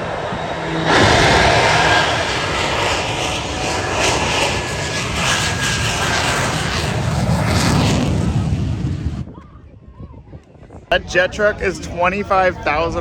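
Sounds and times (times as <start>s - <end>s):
jet engines roaring: 0.0s - 9.4s.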